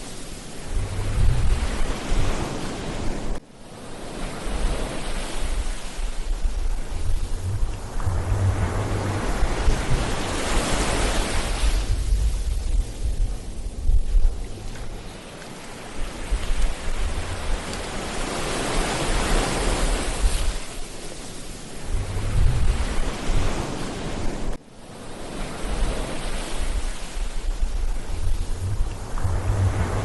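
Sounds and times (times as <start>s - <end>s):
ocean surf breaking on beach: 0.0s - 30.0s
wind buffeting microphone: 0.6s - 3.4s, 4.5s - 21.0s, 21.7s - 24.6s, 25.6s - 30.0s.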